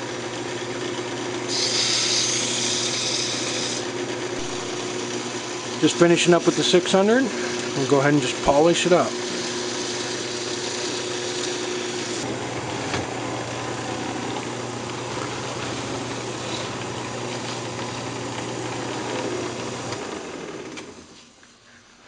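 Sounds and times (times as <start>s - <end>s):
wood lathe running: 0.0s - 21.2s
hiss of friction polishing wood: 1.5s - 4.5s.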